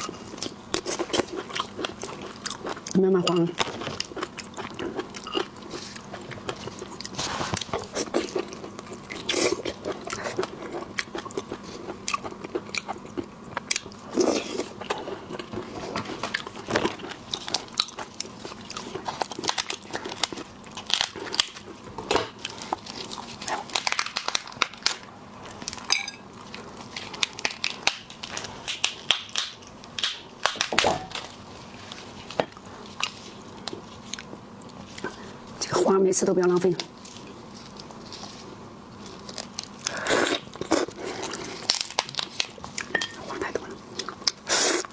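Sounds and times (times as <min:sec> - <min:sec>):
wet chewing: 0:00.0 - 0:35.6.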